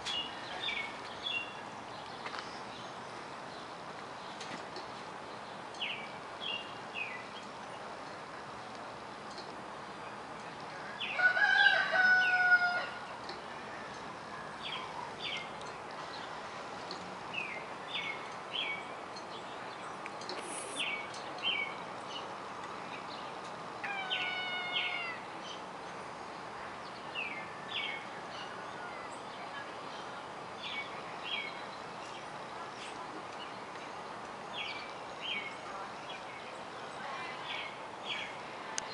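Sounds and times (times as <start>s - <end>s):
steady background noise: 0.0s - 38.9s
lower bird call: 23.8s - 25.3s.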